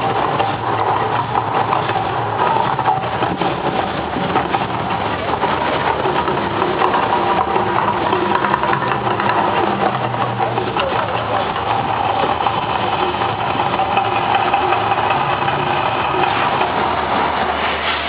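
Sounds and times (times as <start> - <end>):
crowd voices: 0.0 - 18.0
loud rumbling din: 0.0 - 18.0.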